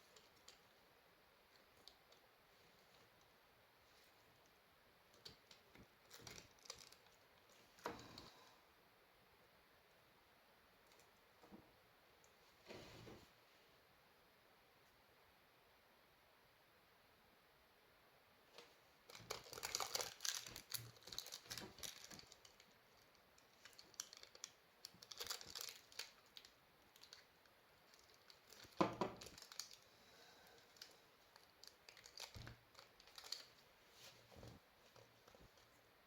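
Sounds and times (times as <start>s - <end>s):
crinkling material rustling: 1.5s - 8.4s, 18.5s - 29.8s, 30.6s - 35.9s.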